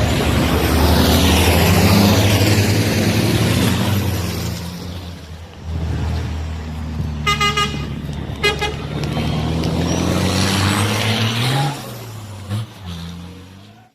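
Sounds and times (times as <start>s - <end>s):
diesel truck engine running: 0.0s - 12.9s
horn toots: 7.2s - 9.1s.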